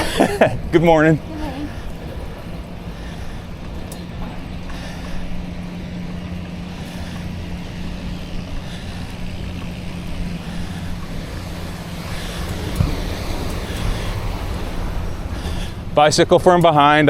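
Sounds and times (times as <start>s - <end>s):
wind rushing over microphone: 7.3s - 17.0s.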